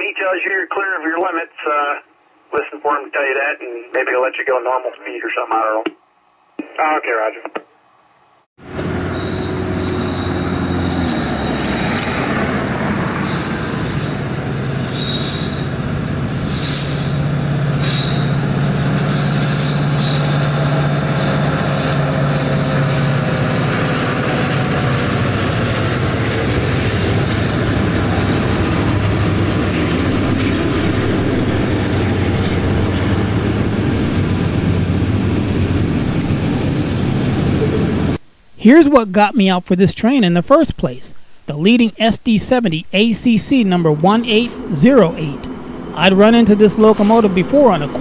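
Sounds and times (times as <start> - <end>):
train wheels rumbling on rail: 8.6 - 38.2, 43.9 - 48.0
high wheel squeal: 8.7 - 27.2.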